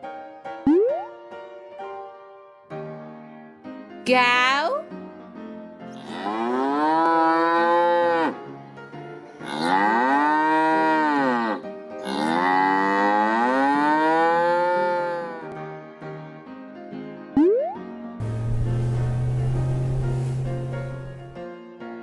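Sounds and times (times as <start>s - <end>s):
cow mooing: 6.0s - 8.4s, 9.4s - 15.6s.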